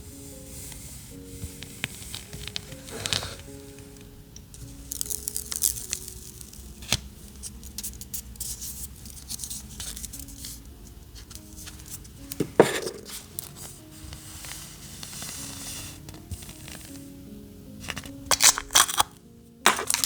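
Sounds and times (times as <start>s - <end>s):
soft background music: 0.0s - 20.0s
paper and tape clicks and rustles: 1.5s - 3.9s, 4.6s - 10.6s, 17.8s - 20.0s
sharp paper crackle: 4.6s - 10.6s, 17.9s - 20.0s.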